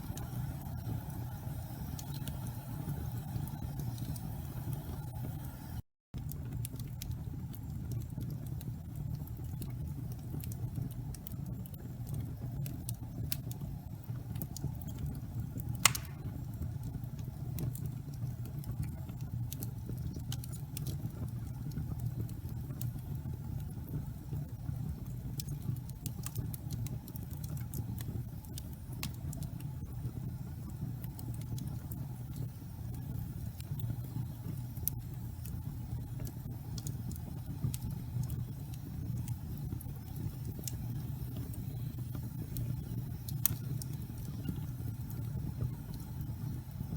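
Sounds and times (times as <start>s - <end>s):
fire crackling: 0.0s - 46.9s
low rumble of flames: 0.0s - 46.9s
loud sharp pop: 15.8s - 16.3s.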